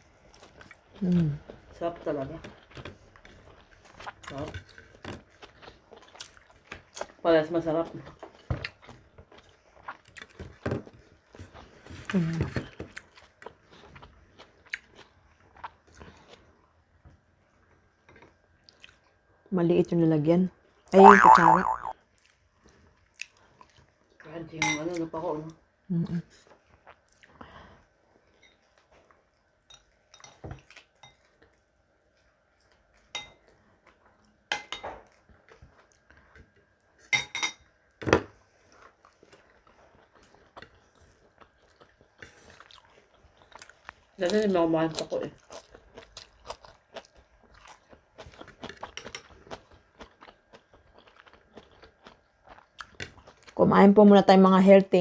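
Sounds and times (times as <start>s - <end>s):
person chewing food: 0.0s - 7.2s, 7.8s - 19.2s, 21.0s - 24.1s, 26.4s - 34.4s, 35.0s - 37.1s, 38.3s - 53.6s
wet mouth clicks: 21.0s - 21.9s
cutlery clinking on dishes: 29.7s - 31.2s, 34.5s - 35.1s, 37.2s - 37.7s.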